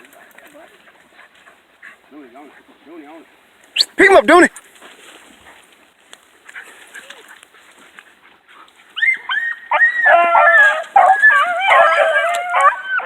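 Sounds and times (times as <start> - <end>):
hounds baying: 8.9 - 13.0.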